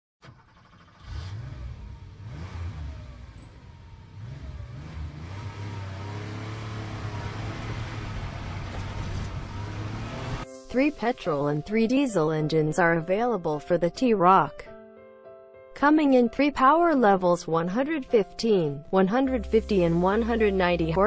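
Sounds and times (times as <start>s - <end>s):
car engine accelerating: 0.2s - 10.5s.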